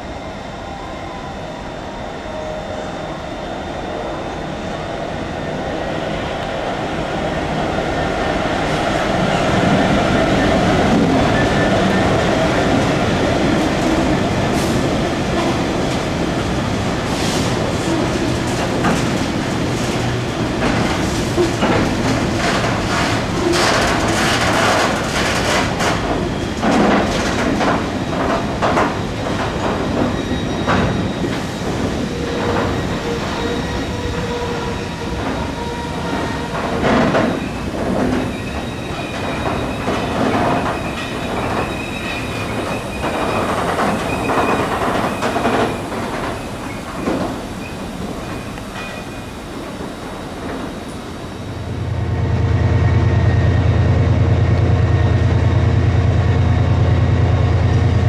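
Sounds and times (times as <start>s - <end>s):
train wheels clicking on rails: 8.4s - 58.0s
train wheel squeals: 29.0s - 51.6s.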